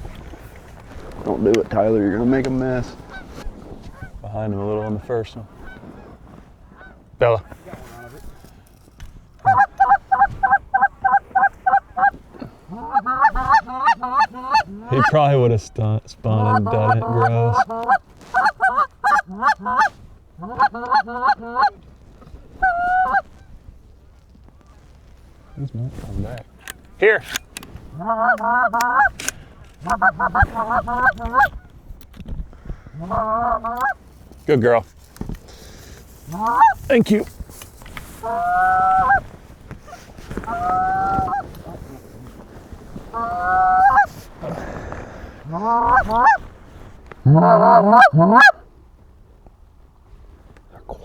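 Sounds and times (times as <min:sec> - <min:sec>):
goose honking: 0:01.4 - 0:06.1, 0:06.7 - 0:07.0, 0:09.4 - 0:21.8, 0:22.6 - 0:23.5, 0:26.3 - 0:31.7, 0:33.0 - 0:34.0, 0:36.3 - 0:37.3, 0:38.1 - 0:39.3, 0:39.9 - 0:41.8, 0:43.1 - 0:46.4, 0:47.2 - 0:48.6.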